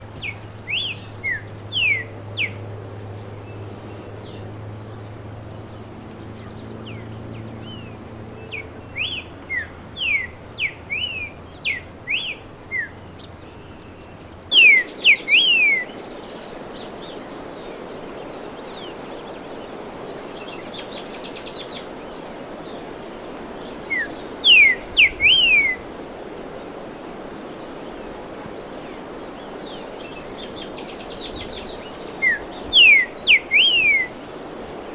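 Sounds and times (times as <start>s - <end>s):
bird singing whistled phrases: 14.5s - 15.9s, 23.9s - 25.8s, 31.6s - 34.2s.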